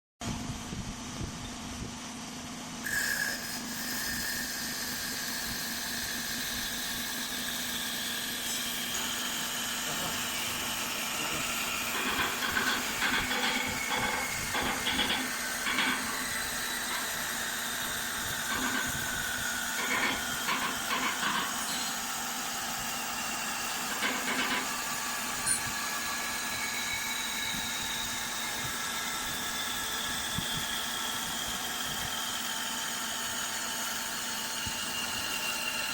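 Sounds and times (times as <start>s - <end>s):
machine whine: 2.8s - 35.9s
rattling cutting noise: 3.3s - 30.1s.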